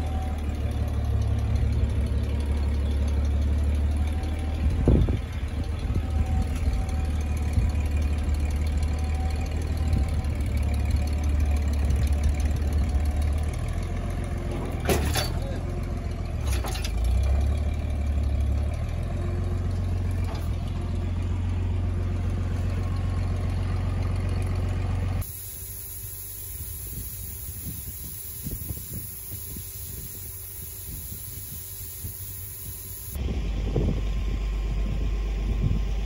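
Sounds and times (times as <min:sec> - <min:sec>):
engine idling: 0:00.0 - 0:36.0
hiss: 0:25.2 - 0:33.2.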